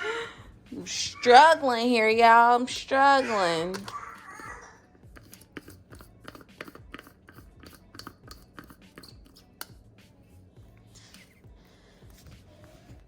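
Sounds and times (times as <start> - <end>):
plastic blender cup clicks and scrapes: 5.1 - 9.4.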